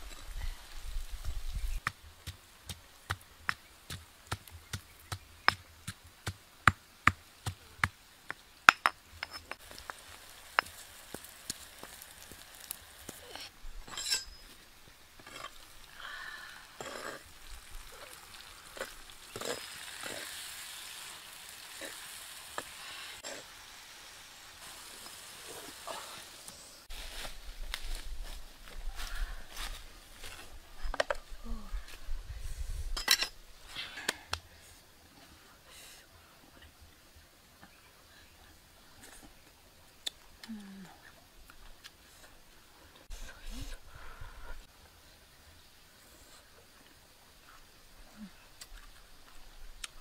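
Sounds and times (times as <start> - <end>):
vegetables sizzling in a wok: 9.6 - 13.5, 15.4 - 28.4.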